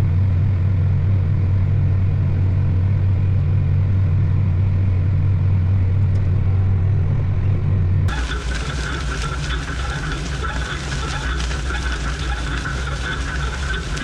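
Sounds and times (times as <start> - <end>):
vehicle engine droning: 0.0 - 14.0
hissy engine sound: 8.1 - 14.0.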